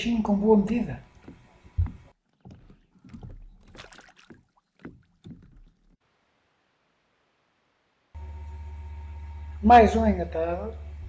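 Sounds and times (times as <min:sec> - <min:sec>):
water splashing: 0:01.0 - 0:06.1
gear knocking on kayak: 0:01.2 - 0:03.9, 0:04.8 - 0:05.8
dull thump: 0:01.2 - 0:05.7.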